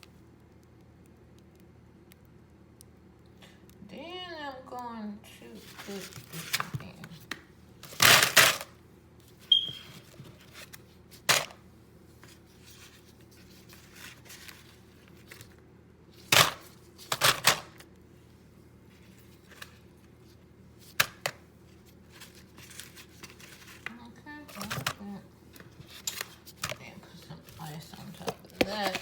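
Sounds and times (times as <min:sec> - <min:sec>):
food and ice clattering in a bowl: 0:07.8 - 0:08.8, 0:27.5 - 0:29.0.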